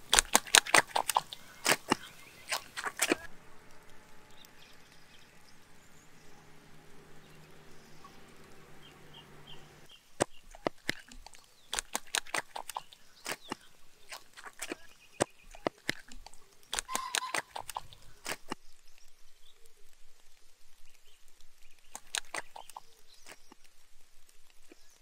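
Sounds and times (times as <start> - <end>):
knife cracking chicken bones: 0.1 - 3.2, 10.2 - 18.6.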